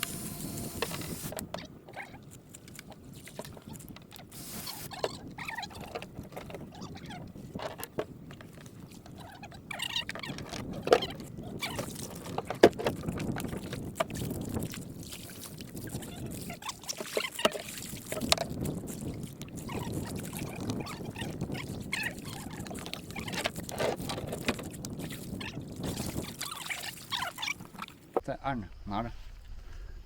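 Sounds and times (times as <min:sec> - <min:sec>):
water splashing: 0:08.2 - 0:28.2.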